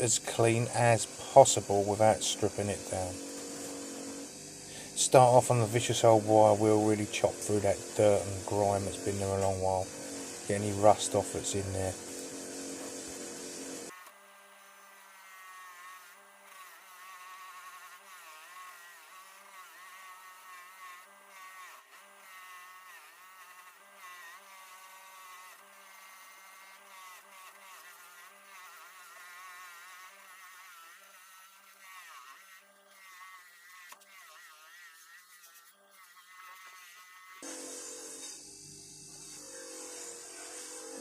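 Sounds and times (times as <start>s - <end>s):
bench grinder wire wheel whine: 0.0s - 14.0s, 37.2s - 41.0s
motor hum: 0.0s - 14.0s, 37.2s - 41.0s.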